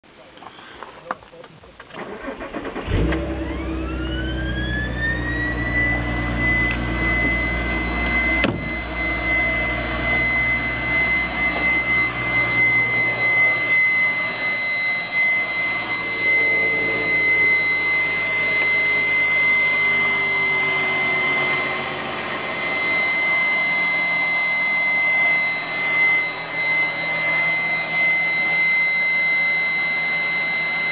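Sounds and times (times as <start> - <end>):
car engine starting and idling: 0.8 - 14.4, 15.1 - 25.2
high-pitched engine whine: 2.0 - 30.9.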